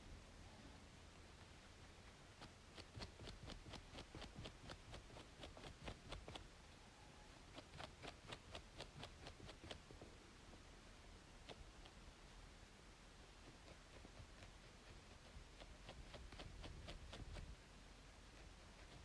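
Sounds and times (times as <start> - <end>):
white noise hiss: 0.0 - 19.0
scalp being scratched: 2.4 - 6.4, 7.5 - 9.8, 13.6 - 17.5.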